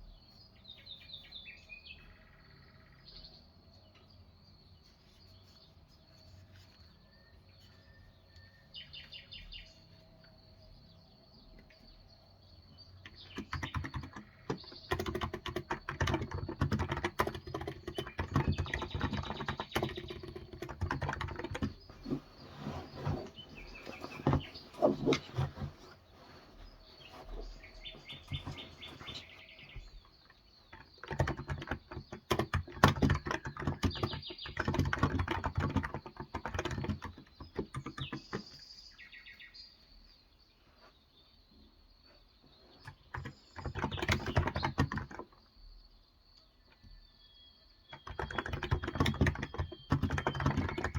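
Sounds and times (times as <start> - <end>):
birds chirping: 0.0 - 50.9
typing on a keyboard: 13.0 - 21.9, 30.2 - 38.6, 42.8 - 45.4, 47.9 - 50.9.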